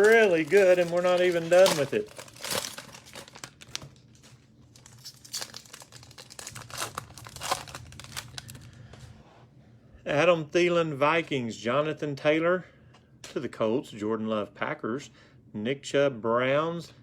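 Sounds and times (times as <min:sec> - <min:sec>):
cellophane wrapper tearing and crinkling: 0:00.0 - 0:08.8.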